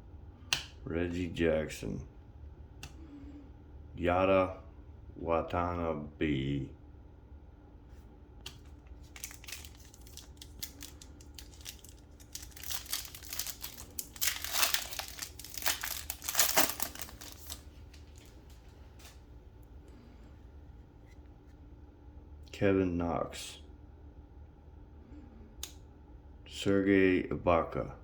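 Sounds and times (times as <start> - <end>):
plastic wrapper crinkling and tearing: 8.6 - 19.2.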